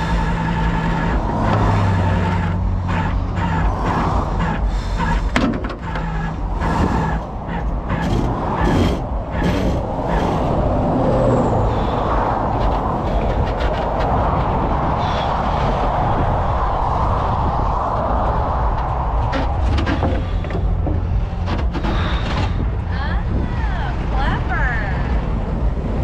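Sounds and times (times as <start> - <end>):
metal clanks and rattles: 0.0 - 10.6, 12.5 - 14.5, 18.7 - 22.9
truck engine running: 0.0 - 15.0, 16.0 - 26.0
steady whir: 0.0 - 26.0.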